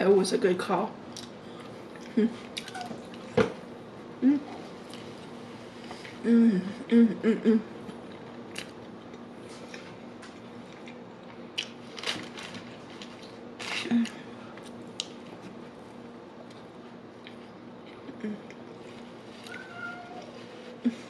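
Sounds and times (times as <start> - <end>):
woman humming mmm: 2.1 - 2.4, 4.2 - 4.6, 6.2 - 7.7, 18.1 - 18.6.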